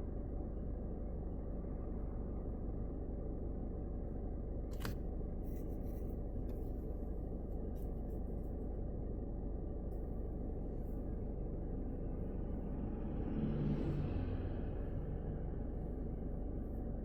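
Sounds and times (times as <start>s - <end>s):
sharp click: 4.7s - 5.0s
car driving on highway: 11.8s - 16.5s.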